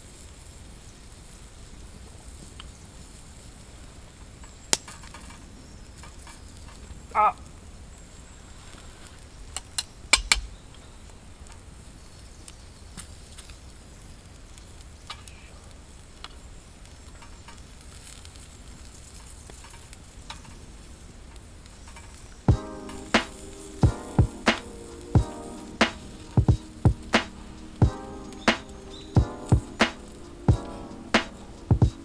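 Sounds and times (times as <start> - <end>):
faint sizzle: 11.0 - 32.0
campfire crackling: 11.2 - 32.0
sharp fire pops: 22.5 - 32.0.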